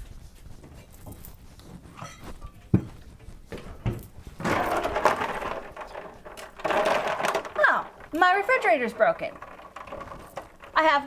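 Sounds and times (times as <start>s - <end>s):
dense clattering: 4.3s - 11.0s.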